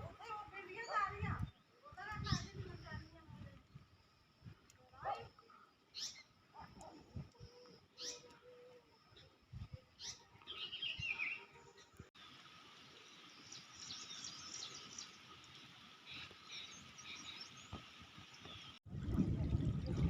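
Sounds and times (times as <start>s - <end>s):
songbirds chirping: 0.1s - 18.8s.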